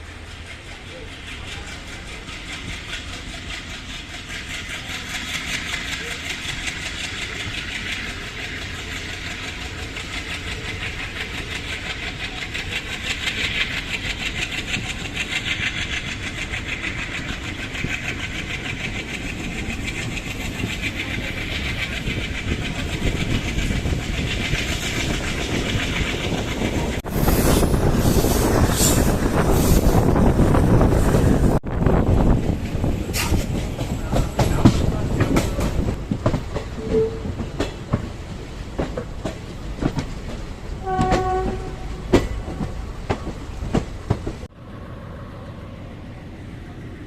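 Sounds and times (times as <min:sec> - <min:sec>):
train wheels rumbling on rail: 0:00.0 - 0:47.0
wind buffeting microphone: 0:13.6 - 0:40.8.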